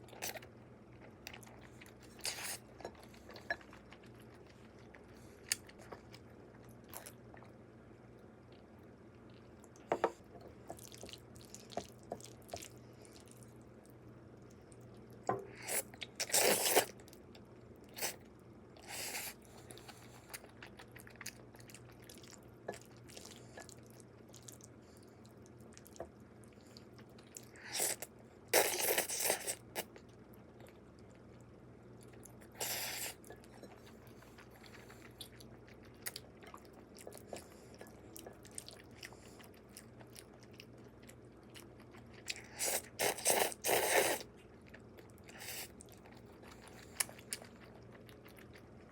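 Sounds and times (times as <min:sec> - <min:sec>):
faint low hum: 0:00.0 - 0:48.9
person chewing food: 0:08.5 - 0:13.6, 0:18.8 - 0:48.9.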